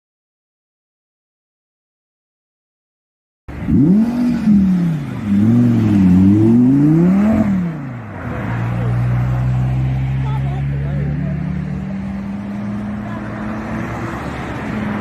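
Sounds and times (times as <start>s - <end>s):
car engine revving: 3.5s - 15.0s.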